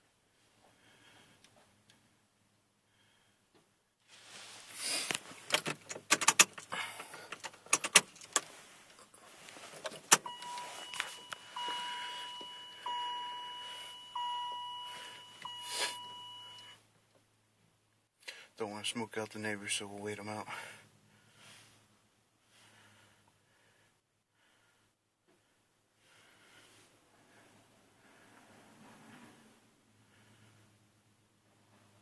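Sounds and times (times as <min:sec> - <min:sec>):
keys jangling: 0:05.4 - 0:06.7
sharp clicks: 0:05.5 - 0:06.7
truck warning chime: 0:10.1 - 0:16.8.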